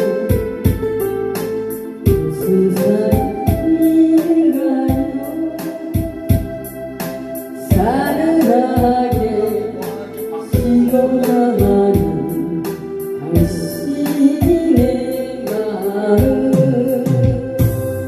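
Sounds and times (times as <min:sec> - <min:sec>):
drum machine beat: 0:00.0 - 0:04.0, 0:04.9 - 0:05.3, 0:06.0 - 0:07.1, 0:07.7 - 0:12.4, 0:13.3 - 0:15.6, 0:16.2 - 0:18.0
electronic organ: 0:00.0 - 0:18.0
person singing pop song: 0:00.0 - 0:18.0.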